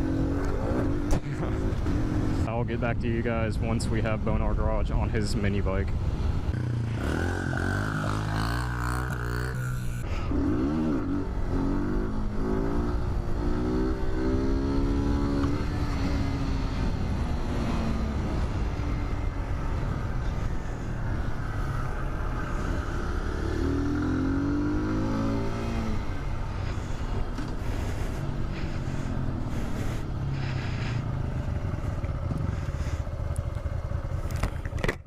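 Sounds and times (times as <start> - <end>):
mini-bike engine revving: 6.6 - 18.8, 21.6 - 35.0.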